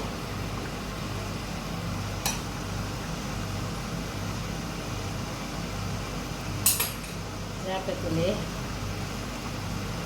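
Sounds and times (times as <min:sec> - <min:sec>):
low kitchen hum: 0:00.0 - 0:10.0
utensil clinking against pot: 0:06.6 - 0:07.2.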